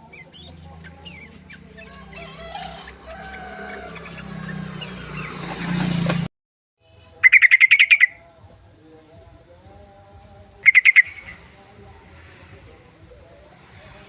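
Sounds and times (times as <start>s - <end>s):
mixed bird calls: 0.0s - 5.8s, 7.2s - 8.7s, 9.7s - 12.0s
bulbul rapid chattering call: 7.2s - 8.2s, 10.6s - 11.4s.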